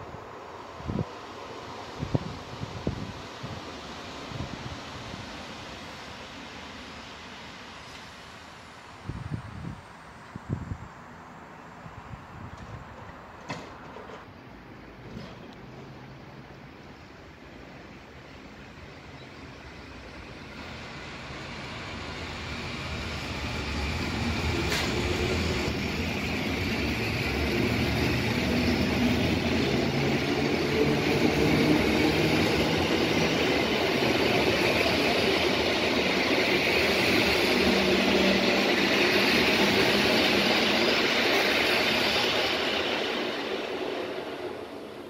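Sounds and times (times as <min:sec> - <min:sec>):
train wheels rumbling on rails: 0:12.0 - 0:45.0.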